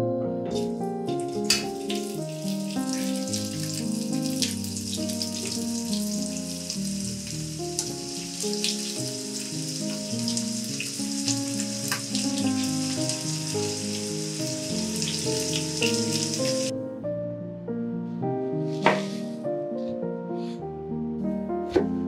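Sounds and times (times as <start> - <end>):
background music: 0.0 - 22.0
potatoes frying in hot oil: 1.2 - 16.7.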